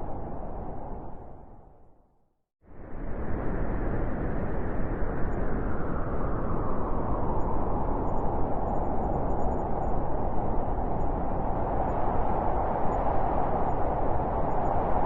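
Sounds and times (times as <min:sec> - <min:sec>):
blizzard wind blowing: 0:00.0 - 0:02.0, 0:02.7 - 0:15.0.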